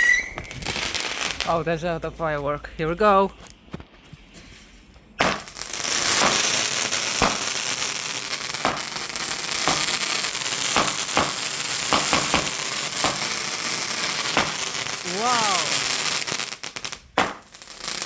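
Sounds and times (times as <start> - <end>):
firework hissing: 0.0 - 1.5, 5.2 - 18.0
sharp firework cracks: 0.3 - 1.5, 5.2 - 18.0.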